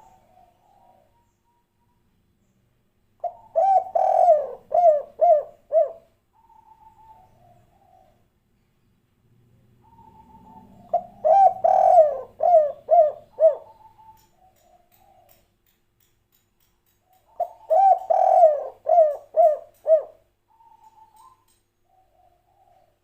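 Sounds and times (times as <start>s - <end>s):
dove cooing: 0.0s - 1.3s, 3.2s - 8.2s, 9.8s - 15.4s, 17.3s - 23.0s.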